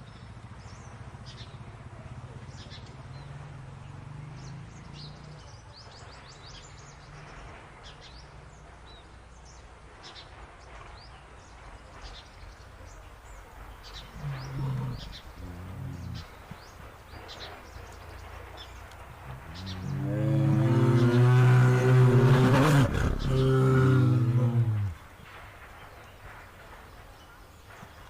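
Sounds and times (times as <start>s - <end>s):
birds chirping: 10.9s - 28.0s
deep animal growls: 13.9s - 16.7s, 18.5s - 25.1s.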